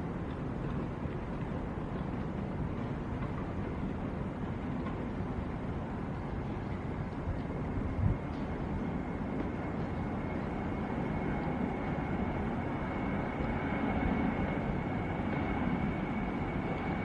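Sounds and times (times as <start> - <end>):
jet engines rumbling: 0.0 - 17.0
faint high whine: 5.9 - 17.0.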